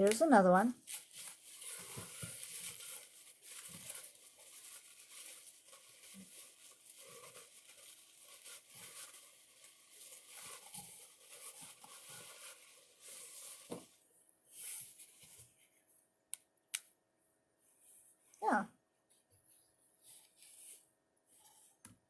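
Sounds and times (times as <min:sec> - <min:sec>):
packaging rustling and crinkling: 0:00.0 - 0:15.7
small ticks and scrapes: 0:00.8 - 0:14.0.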